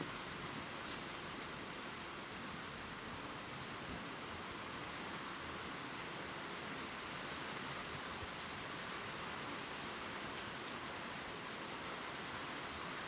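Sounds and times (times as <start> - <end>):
rain pattering on leaves: 4.5 - 13.0.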